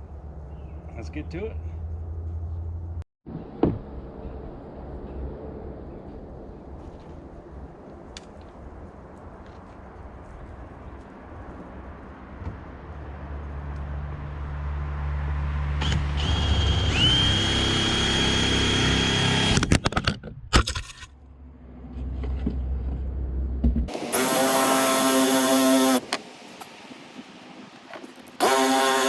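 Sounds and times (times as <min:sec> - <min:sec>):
electric power tool motor whining: 0:15.8 - 0:19.7, 0:23.9 - 0:26.8, 0:28.4 - 0:29.0.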